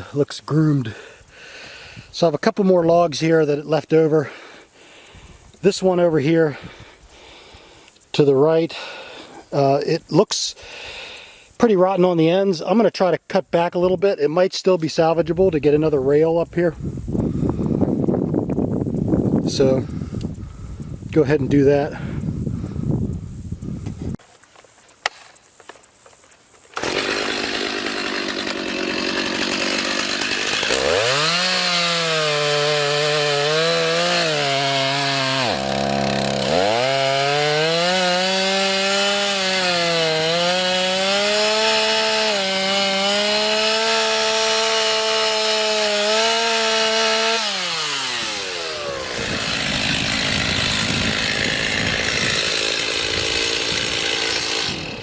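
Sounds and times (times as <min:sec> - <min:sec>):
chainsaw cutting a log: 0:26.7 - 0:55.0.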